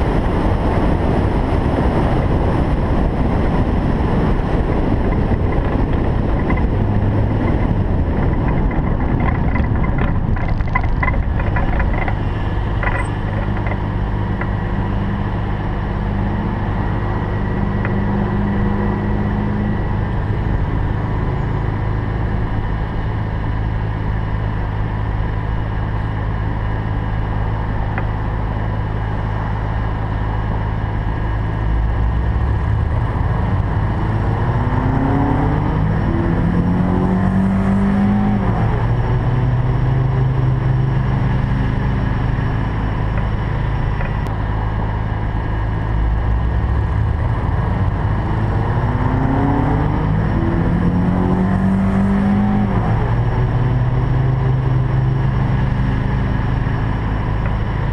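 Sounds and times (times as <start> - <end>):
car engine revving: 30.5 - 57.9.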